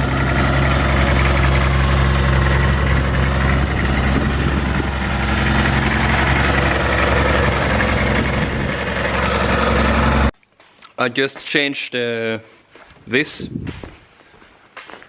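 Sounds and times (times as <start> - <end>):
diesel engine idling: 0.0 - 10.4.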